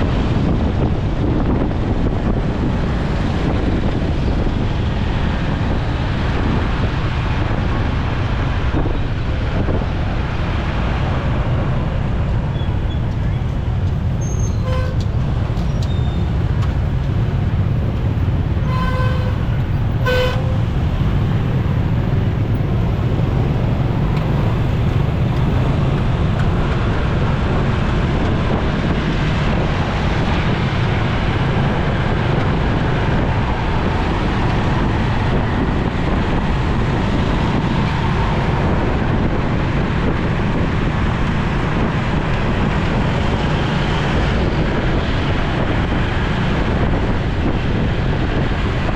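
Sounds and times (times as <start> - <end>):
wind and road noise: 0.0 - 48.9
vehicle horn toots: 14.2 - 15.2, 18.6 - 20.8.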